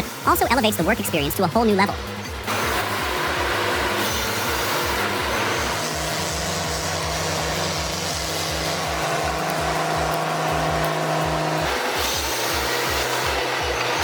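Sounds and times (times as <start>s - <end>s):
heavy machinery engine running: 0.0s - 14.0s
steady hum: 0.0s - 14.0s.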